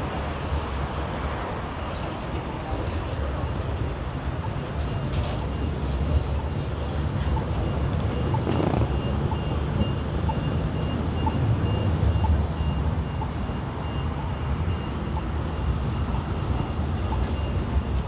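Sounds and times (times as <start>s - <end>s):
rumble of passing cars: 0.0s - 18.0s.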